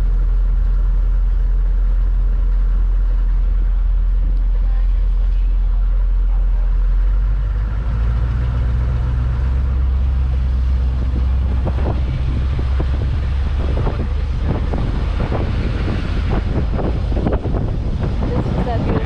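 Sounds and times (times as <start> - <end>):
vehicle engine rumbling: 0.0 - 19.0
wind buffeting microphone: 8.8 - 19.0.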